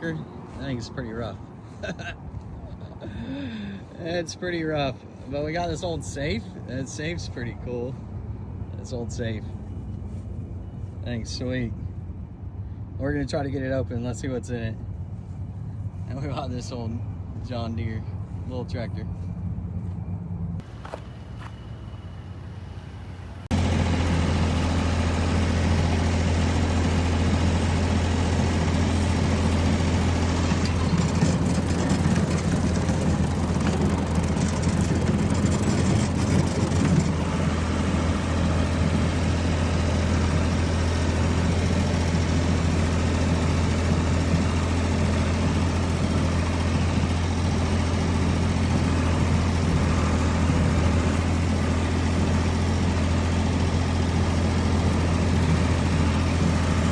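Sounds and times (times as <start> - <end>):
engine running steadily: 0.0 - 56.9.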